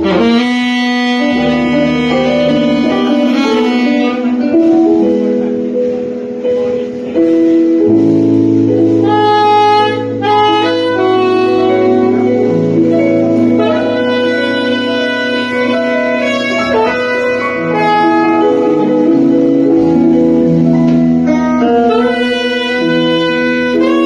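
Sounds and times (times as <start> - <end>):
bass: 0.0 - 24.0
saxophone melody: 0.0 - 24.0
slow r and b band music: 0.0 - 24.0.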